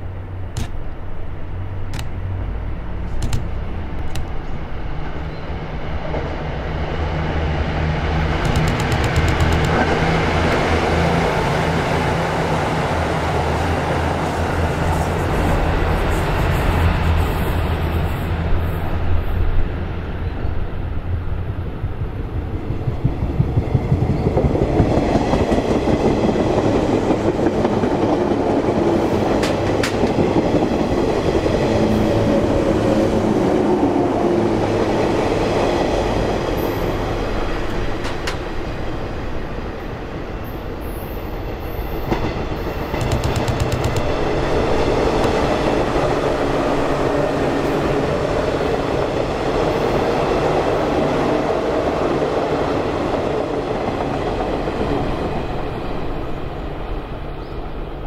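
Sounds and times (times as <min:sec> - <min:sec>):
train wheels rumbling on track: 0:00.0 - 0:58.0
sharp clicks of rails: 0:00.5 - 0:00.9, 0:01.9 - 0:02.2, 0:03.1 - 0:04.5, 0:08.3 - 0:10.6, 0:29.4 - 0:30.2, 0:37.7 - 0:38.5, 0:42.9 - 0:44.2.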